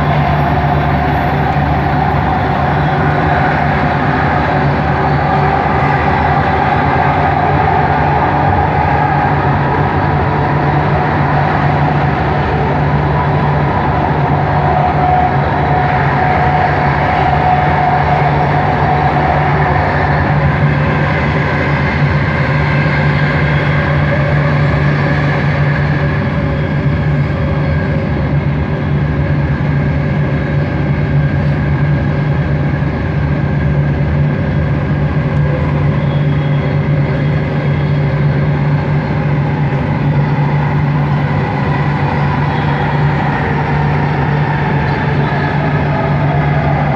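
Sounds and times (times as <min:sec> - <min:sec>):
train cabin hum: 0:00.0 - 0:46.9.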